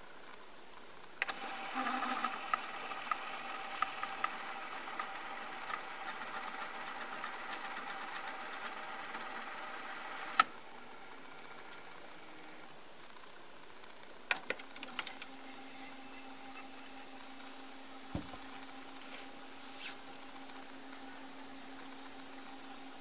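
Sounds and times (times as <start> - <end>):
cassette motor whirring: 1.0 - 23.0
rewind engaging click: 1.2 - 5.8, 10.0 - 10.5.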